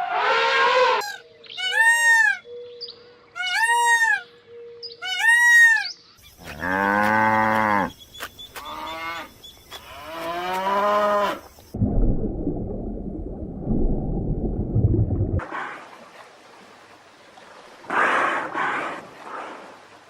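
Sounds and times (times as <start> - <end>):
cattle mooing: 6.5 - 7.9.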